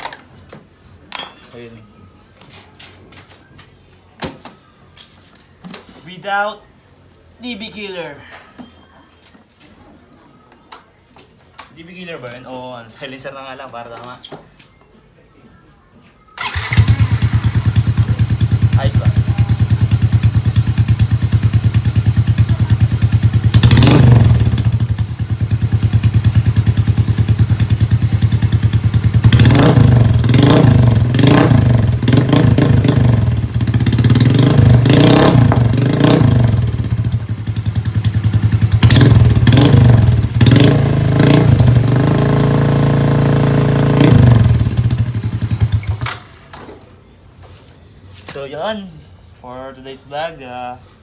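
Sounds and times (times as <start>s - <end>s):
scooter engine idling and revving: 16.4s - 46.1s.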